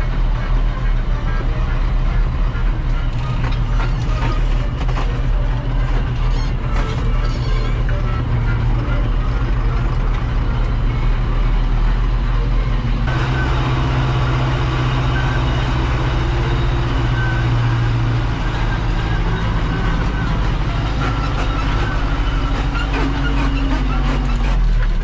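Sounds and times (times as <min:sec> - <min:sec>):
farm vehicle engine running: 0:00.0 - 0:25.0.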